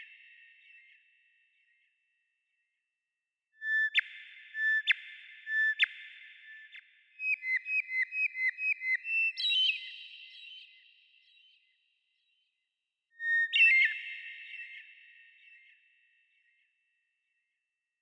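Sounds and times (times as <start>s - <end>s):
bird whistling song: 3.6s - 11.7s, 13.2s - 15.8s.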